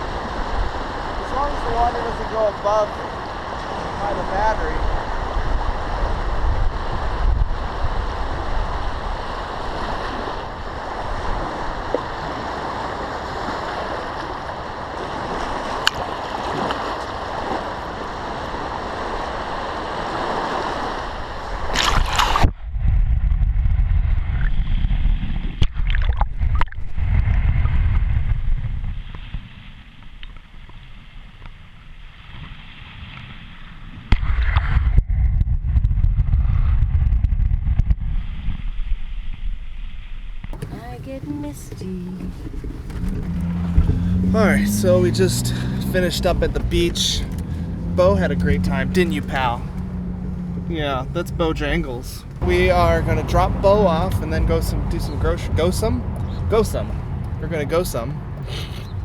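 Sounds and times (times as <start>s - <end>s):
lake water lapping at shore: 0.0s - 22.4s, 40.6s - 59.0s
low rumble: 40.6s - 59.0s.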